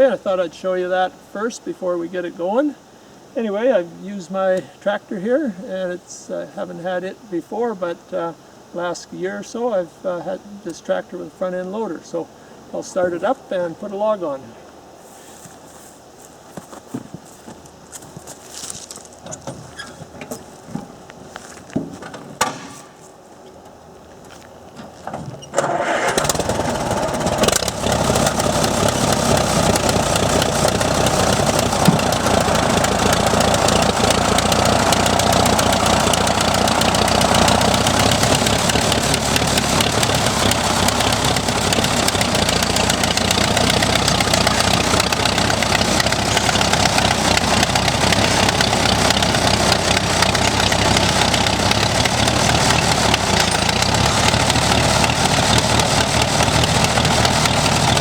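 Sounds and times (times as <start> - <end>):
tractor engine starting and running: 19.2 - 21.2, 22.0 - 23.0, 24.6 - 58.0.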